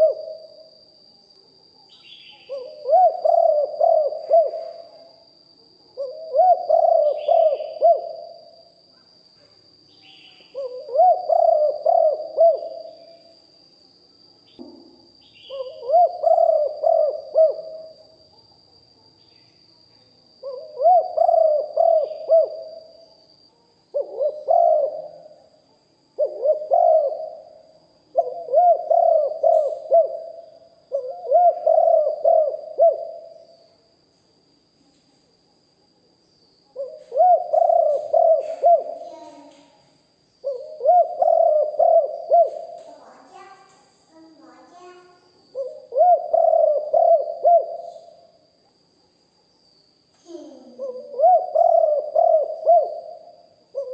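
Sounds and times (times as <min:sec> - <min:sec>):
dove cooing: 0:00.0 - 0:00.7, 0:02.0 - 0:05.1, 0:05.9 - 0:08.6, 0:10.5 - 0:13.2, 0:15.4 - 0:18.2, 0:20.4 - 0:23.0, 0:23.9 - 0:25.5, 0:26.2 - 0:33.4, 0:36.7 - 0:39.7, 0:40.4 - 0:43.6, 0:44.2 - 0:48.2, 0:50.3 - 0:53.9.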